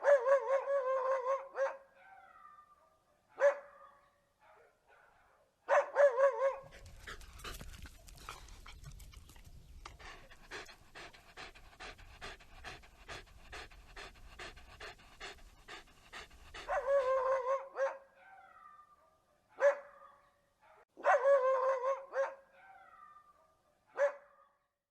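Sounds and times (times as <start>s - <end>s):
dog barking: 0.0s - 2.7s, 3.3s - 6.9s, 15.2s - 18.9s, 19.5s - 24.6s
dog panting rapidly: 6.6s - 17.3s.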